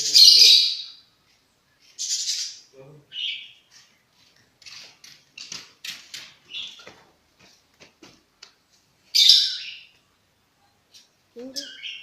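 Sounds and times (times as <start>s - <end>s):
lovebird shrill chirps: 9.1s - 9.9s, 11.6s - 12.0s.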